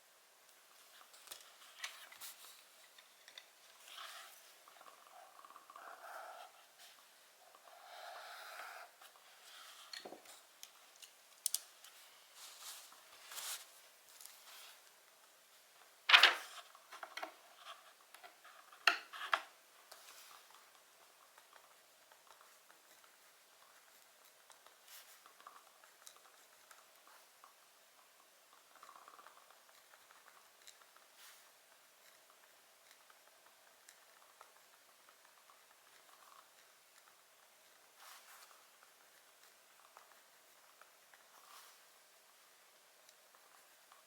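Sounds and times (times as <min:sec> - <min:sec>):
wood fire crackling: 0:09.0 - 0:17.7
soft rustling swishes: 0:12.0 - 0:14.8.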